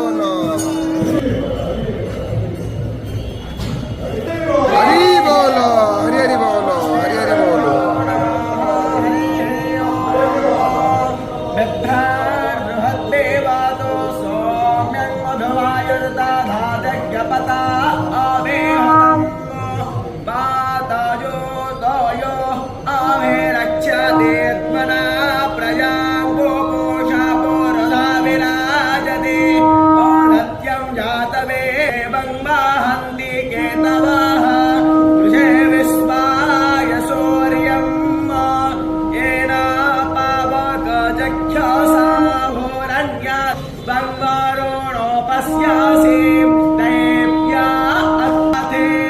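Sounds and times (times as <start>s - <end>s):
men singing devotional song: 4.3s - 49.0s
held low drone note: 4.7s - 11.3s.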